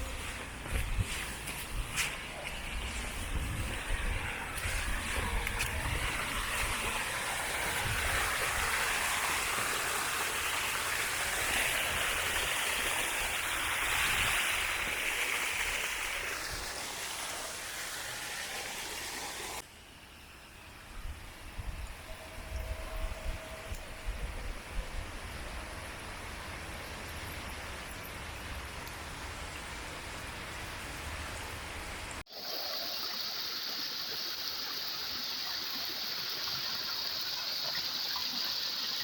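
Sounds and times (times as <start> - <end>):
waterfall rushing: 3.6 - 19.6, 32.3 - 39.0.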